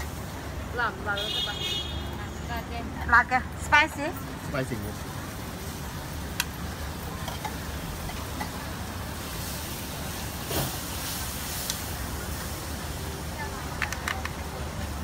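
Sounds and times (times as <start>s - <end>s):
street traffic hum: 0.0s - 15.0s
squid sizzling on griddle: 5.2s - 13.9s.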